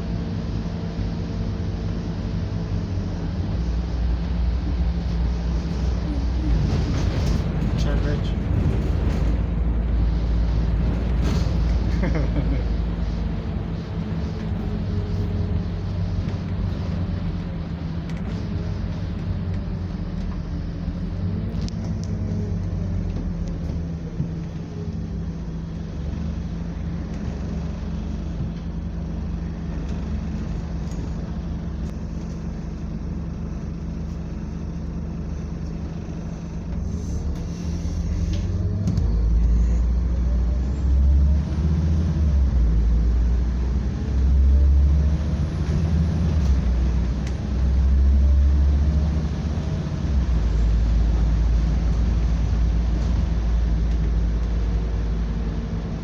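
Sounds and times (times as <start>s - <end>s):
bus engine and road noise: 0.0s - 56.0s
heavy low rumble: 0.0s - 56.0s.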